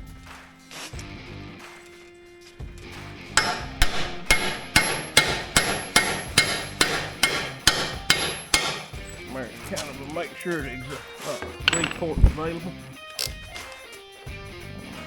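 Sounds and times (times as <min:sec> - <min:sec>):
hammer blows on steel: 0:03.3 - 0:09.3.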